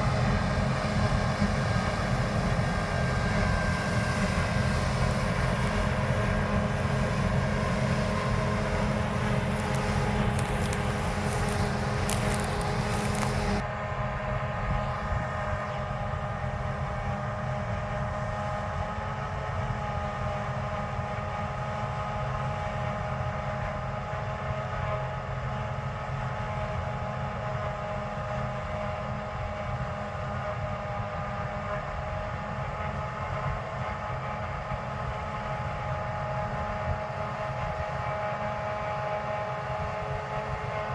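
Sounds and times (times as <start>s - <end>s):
deep engine drone: 0.0s - 13.6s
high machine whine: 0.0s - 13.6s.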